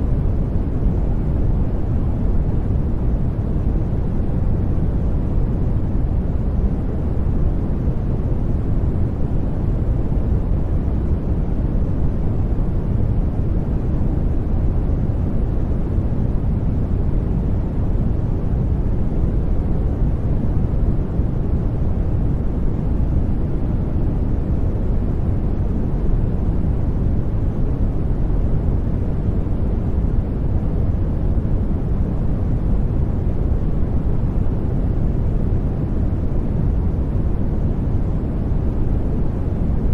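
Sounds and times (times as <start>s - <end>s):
deep low hiss noise: 0.0s - 39.9s.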